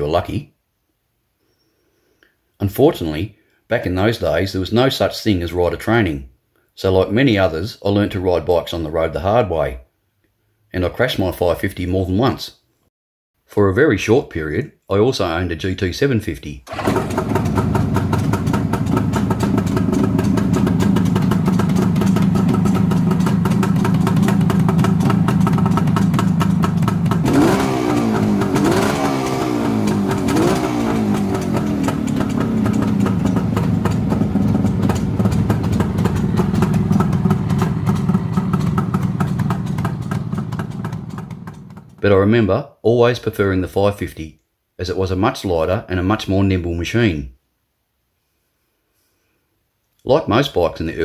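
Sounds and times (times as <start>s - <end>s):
engine throttle blips: 16.7s - 42.0s
two-stroke engine idling: 16.7s - 42.0s.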